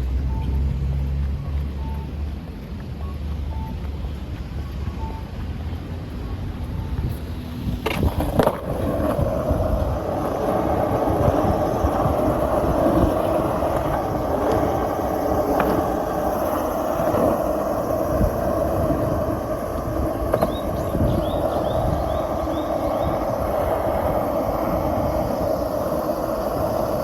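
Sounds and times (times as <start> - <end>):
skateboard wheels rolling on pavement: 0.0 - 27.0
wheels clicking over cracks: 7.0 - 27.0.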